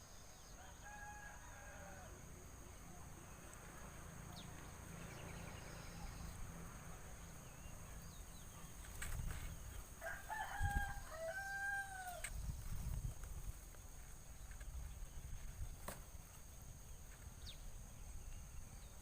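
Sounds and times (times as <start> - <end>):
rooster crowing: 0.6 - 2.4, 10.0 - 12.3.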